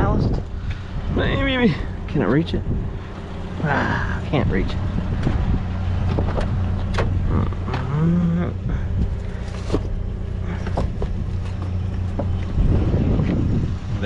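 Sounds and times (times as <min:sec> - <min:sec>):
vehicle engine humming: 0:00.0 - 0:14.0
handling clicks and knocks: 0:09.1 - 0:12.6.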